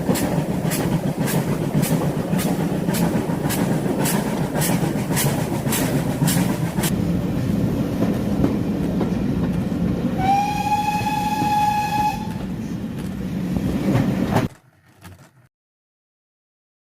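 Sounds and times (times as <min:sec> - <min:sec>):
steam locomotive chuffing: 0:00.0 - 0:07.1
steam locomotive whistle: 0:10.2 - 0:12.5.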